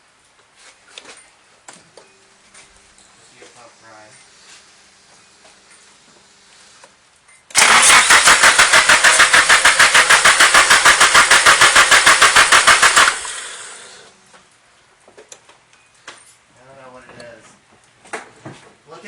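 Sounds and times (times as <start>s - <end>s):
engine cranking on starter: 7.5s - 14.1s.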